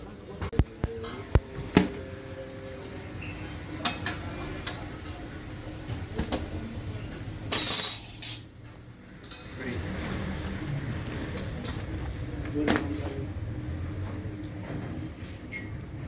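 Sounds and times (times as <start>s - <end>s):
metal utensils clinking: 7.5s - 8.5s, 11.0s - 12.2s
rough scraping: 9.8s - 12.6s.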